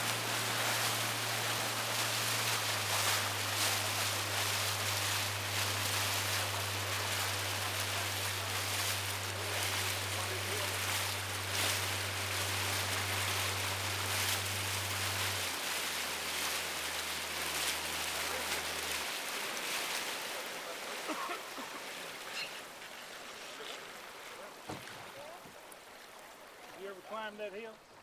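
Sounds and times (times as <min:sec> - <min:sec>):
boat motor humming: 0:00.0 - 0:28.0
water rushing past hull: 0:00.0 - 0:28.0.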